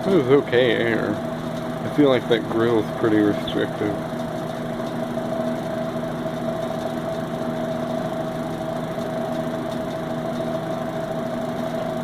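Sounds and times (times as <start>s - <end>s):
box fan running: 0.0s - 12.0s.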